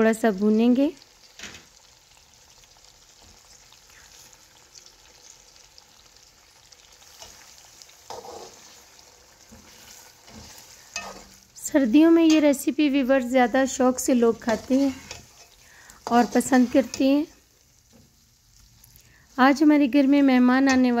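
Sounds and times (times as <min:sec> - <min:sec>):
vegetables sizzling in a wok: 0:00.0 - 0:21.0
metal spatula scraping: 0:07.0 - 0:11.5, 0:14.0 - 0:18.1.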